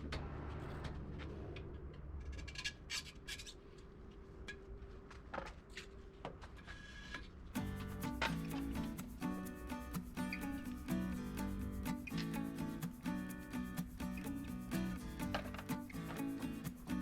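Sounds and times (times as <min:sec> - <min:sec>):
rubbing and scraping on a tyre: 0:05.6 - 0:17.0
background music: 0:07.6 - 0:17.0.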